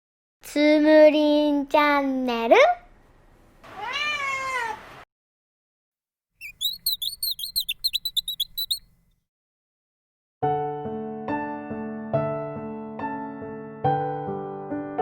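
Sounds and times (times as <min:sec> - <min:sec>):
cat meowing: 0:03.7 - 0:04.8
small bird chirping: 0:06.4 - 0:09.2.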